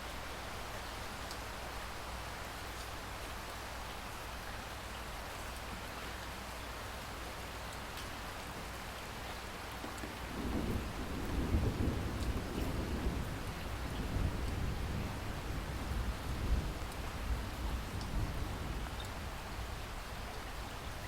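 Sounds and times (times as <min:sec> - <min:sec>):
steady rain: 0:00.0 - 0:21.0
low rumbling thunder: 0:10.3 - 0:19.8.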